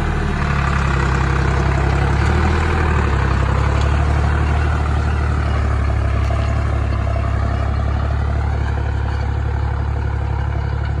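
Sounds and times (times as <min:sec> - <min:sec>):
tractor diesel engine droning: 0:00.0 - 0:11.0.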